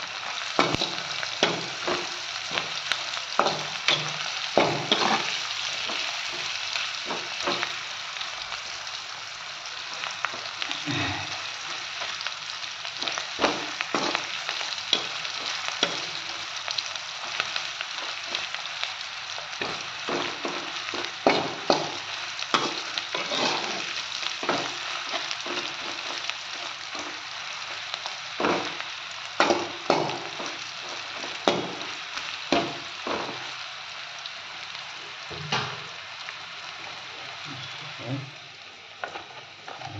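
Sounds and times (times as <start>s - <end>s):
fish and onions sizzling in oil: 0.0s - 39.9s
metal spatula scraping a wok: 0.6s - 6.5s, 19.6s - 27.2s.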